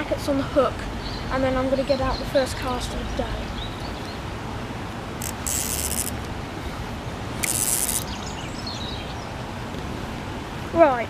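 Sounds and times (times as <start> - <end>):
high crackling rustles: 5.1 - 8.3.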